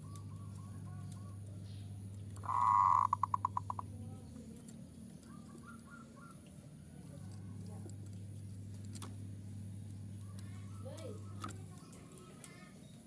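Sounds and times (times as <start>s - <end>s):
steady low hum: 0.0s - 13.0s
dove cooing: 2.4s - 4.0s, 5.3s - 6.4s.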